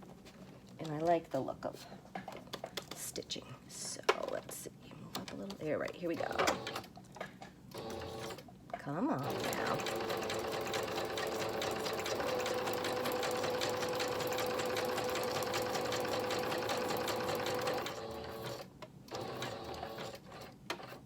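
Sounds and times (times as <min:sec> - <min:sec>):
sewing machine stitching: 0:07.8 - 0:08.4, 0:09.2 - 0:21.0.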